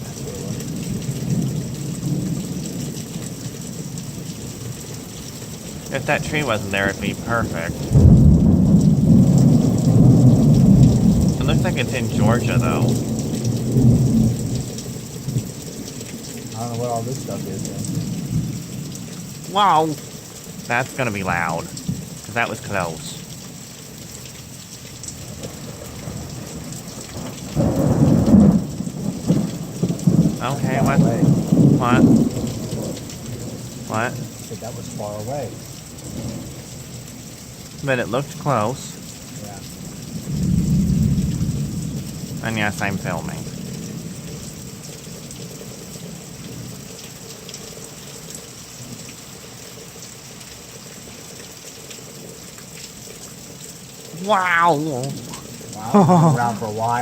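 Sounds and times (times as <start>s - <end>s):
rain hiss: 0.0s - 57.0s
thunder rumbling: 5.8s - 20.1s, 25.2s - 36.6s, 39.6s - 44.7s.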